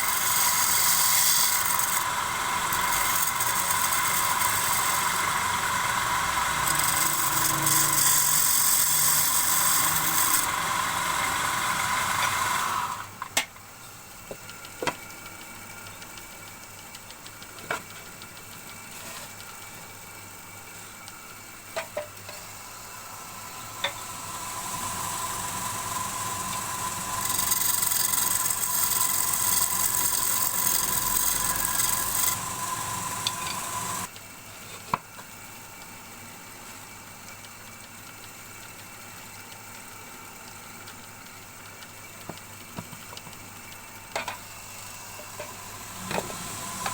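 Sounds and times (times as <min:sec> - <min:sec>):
wood lathe running: 0:00.0 - 0:13.1, 0:23.6 - 0:34.1, 0:45.5 - 0:46.9
turning tool cutting wood: 0:00.0 - 0:13.2, 0:23.4 - 0:34.1, 0:45.0 - 0:46.9.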